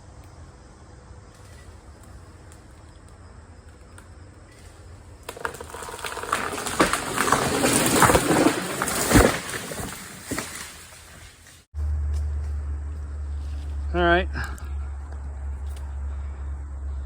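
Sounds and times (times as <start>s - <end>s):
tree cracking and snapping: 1.3s - 11.7s
tree crashing through branches: 4.5s - 11.7s.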